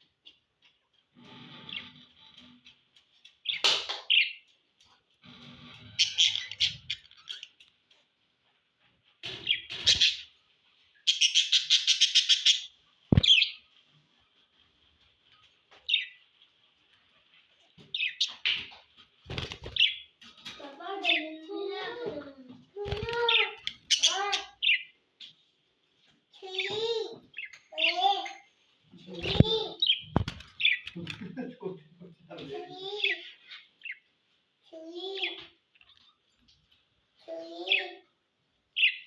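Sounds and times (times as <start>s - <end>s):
budgerigars chirping: 6.0s - 7.5s, 11.1s - 13.6s.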